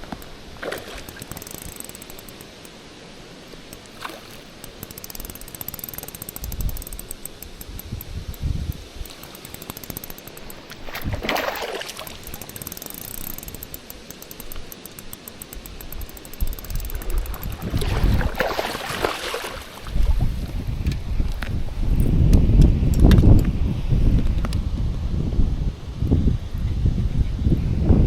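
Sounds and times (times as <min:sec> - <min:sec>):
wind buffeting microphone: 0:06.2 - 0:11.3, 0:15.6 - 0:28.0.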